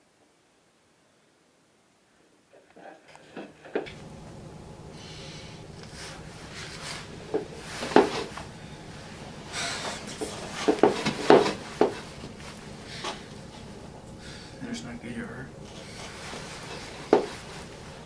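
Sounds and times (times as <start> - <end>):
steady low hum: 0.0 - 18.0
rustling: 5.0 - 14.1, 15.7 - 18.0.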